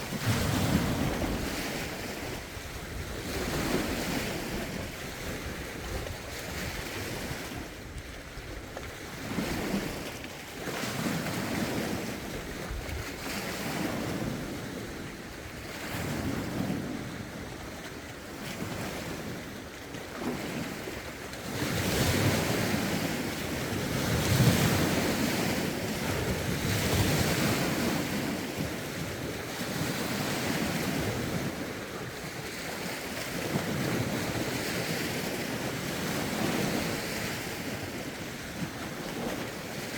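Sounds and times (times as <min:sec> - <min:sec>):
wind buffeting microphone: 0:00.0 - 0:10.1, 0:10.9 - 0:17.8
lake waves washing ashore: 0:00.0 - 0:39.9.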